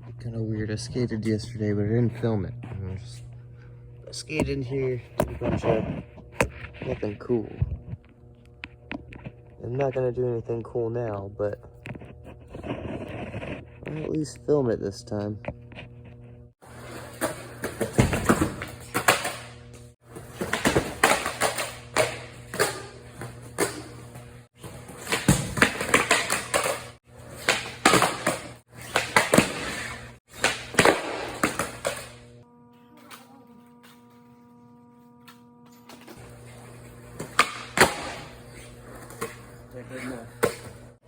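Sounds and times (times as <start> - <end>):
skateboard clacks and scrapes: 11.8 - 14.1, 15.8 - 32.2
skateboard wheels rolling: 16.6 - 32.2.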